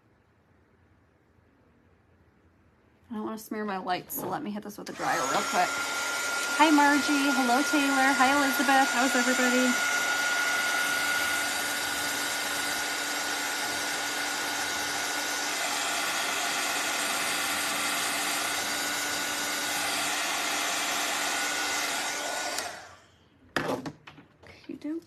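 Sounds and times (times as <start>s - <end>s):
hair dryer blowing: 4.2s - 23.1s.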